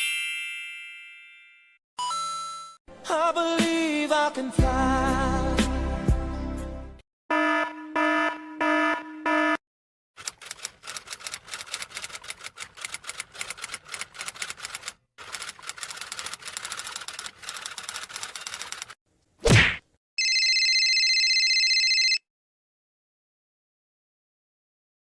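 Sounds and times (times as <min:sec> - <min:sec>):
buzzer-like electronic beeps: 0:07.3 - 0:09.6
typewriter key clacking: 0:10.2 - 0:19.0.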